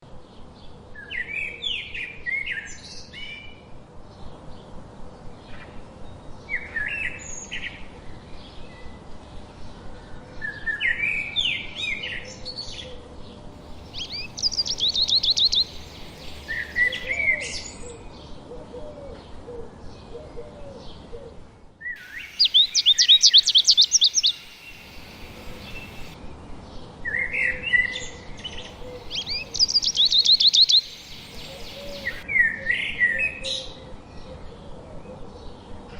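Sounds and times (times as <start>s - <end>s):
songbirds singing: 5.4s - 21.1s, 21.8s - 35.9s
fast loud bird trill: 13.6s - 17.2s, 22.0s - 26.2s, 28.7s - 32.2s.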